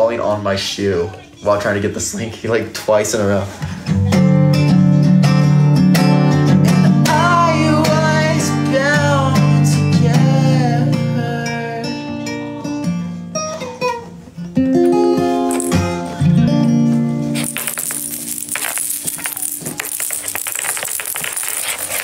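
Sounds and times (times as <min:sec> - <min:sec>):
acoustic guitar strumming: 0:03.6 - 0:17.5
person singing: 0:06.8 - 0:12.8.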